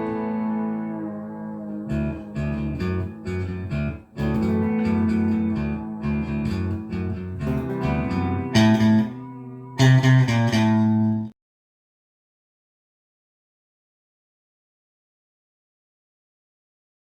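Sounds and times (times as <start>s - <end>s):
bass line: 0.0s - 11.3s
guitar strums: 0.0s - 11.3s
plucked guitar: 0.0s - 11.4s.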